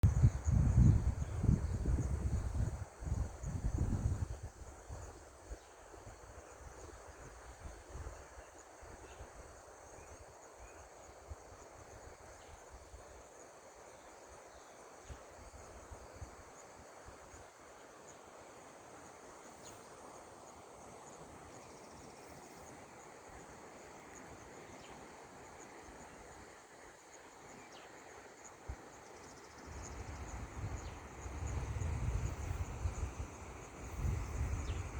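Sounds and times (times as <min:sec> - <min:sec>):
wind rumbling on the microphone: 0:00.0 - 0:09.4, 0:29.4 - 0:34.9
insects chirring: 0:00.0 - 0:34.9.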